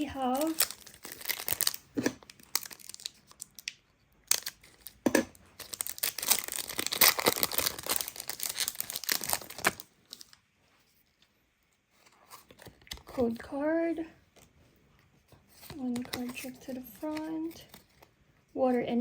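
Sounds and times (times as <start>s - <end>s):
foil pack tearing and crinkling: 0.0s - 3.6s, 4.3s - 5.0s, 5.6s - 10.4s.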